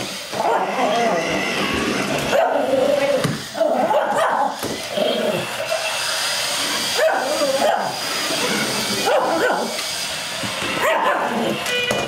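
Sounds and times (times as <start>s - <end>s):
high-pitched electric motor whine: 0.0s - 12.0s
dog barking and yipping: 0.3s - 1.0s, 2.2s - 2.9s, 3.6s - 4.6s, 6.9s - 8.0s, 9.0s - 9.8s, 10.8s - 11.6s.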